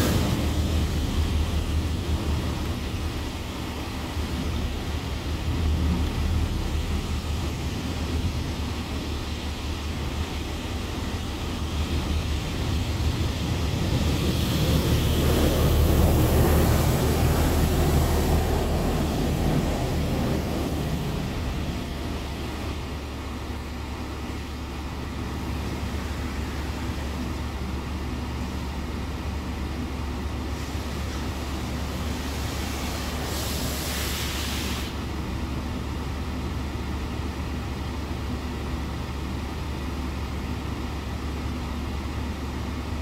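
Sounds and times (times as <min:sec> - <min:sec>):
broad rushing sound: 0:00.0 - 0:28.6, 0:30.5 - 0:35.1
car wash machinery humming: 0:00.0 - 0:43.0.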